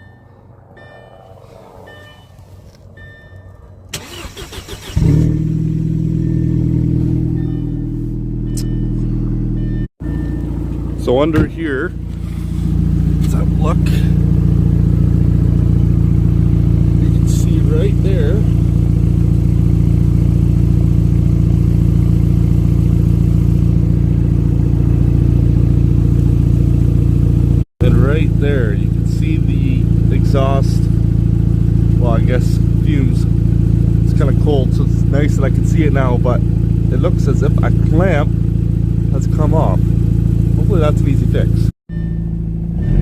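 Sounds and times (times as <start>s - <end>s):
car engine starter cranking: 3.9s - 5.6s
car engine idling loudly: 4.9s - 41.7s.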